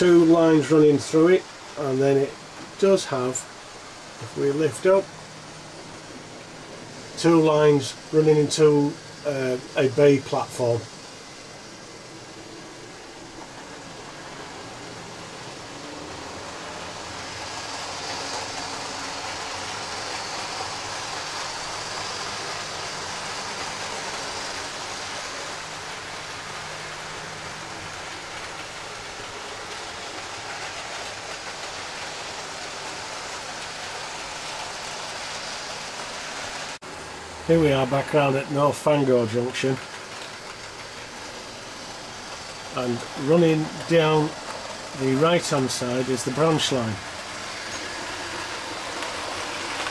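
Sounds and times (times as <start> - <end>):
model train motor whirring: 7.0 - 36.8, 37.7 - 49.9
model train wheels rattling: 12.3 - 36.7, 37.6 - 49.9.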